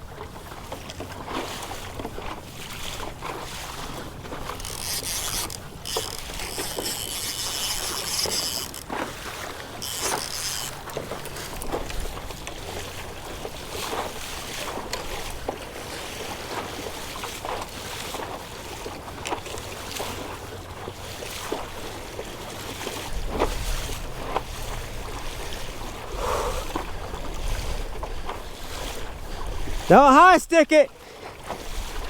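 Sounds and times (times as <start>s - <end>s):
water lapping against kayak hull: 0.0s - 32.0s
wind rumbling on microphone: 23.0s - 29.9s, 31.4s - 32.0s.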